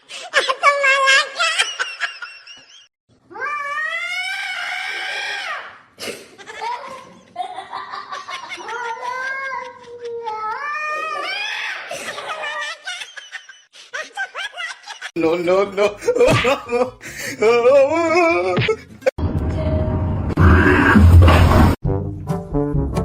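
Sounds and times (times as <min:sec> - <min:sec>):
cat yowling: 0:03.3 - 0:05.6.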